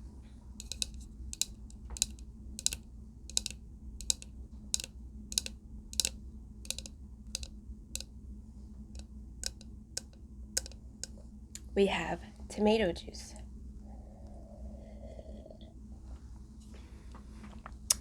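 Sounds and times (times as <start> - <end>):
low background hum: 0.0 - 18.0
light sharp clicks: 0.6 - 8.1.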